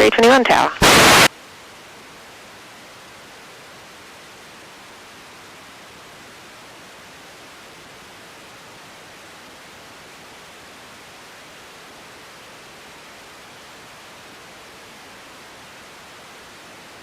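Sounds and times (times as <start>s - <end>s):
radio static hiss: 0.0s - 1.3s.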